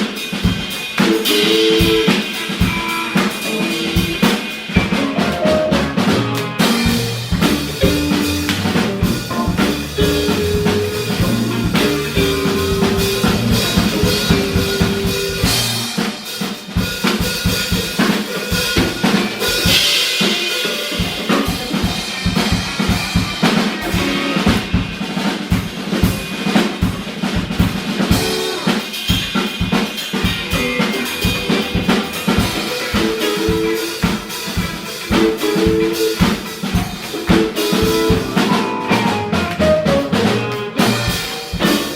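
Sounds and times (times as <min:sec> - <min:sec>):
drum kit playing: 0:00.0 - 0:41.9
keyboard or guitar figures: 0:00.9 - 0:16.0, 0:18.0 - 0:24.9, 0:30.0 - 0:41.9
bass guitar: 0:01.0 - 0:16.0, 0:18.6 - 0:24.8, 0:30.2 - 0:41.9.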